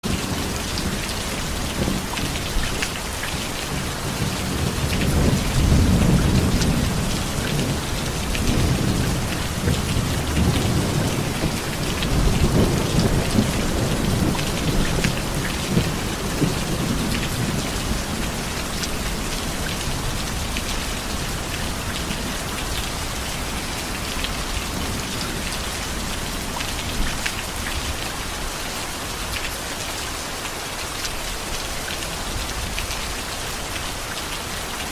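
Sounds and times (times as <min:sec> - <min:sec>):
heavy steady rain: 0:00.0 - 0:34.9
rolling thunder: 0:03.6 - 0:23.0.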